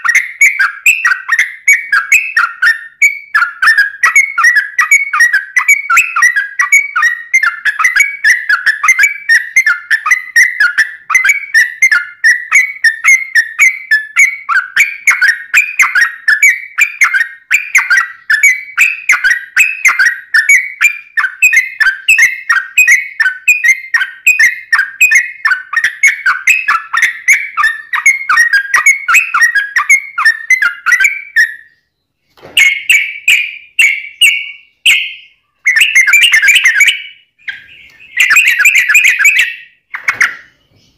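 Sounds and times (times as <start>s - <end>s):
bird singing whistled chattering notes: 0.0s - 32.0s, 32.6s - 40.9s.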